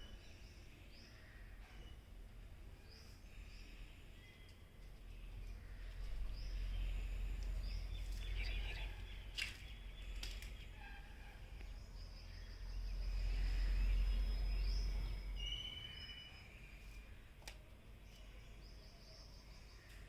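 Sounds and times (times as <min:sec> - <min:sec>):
low rumble: 0:11.4 - 0:15.4
small bird chirping and whistling: 0:14.8 - 0:16.6.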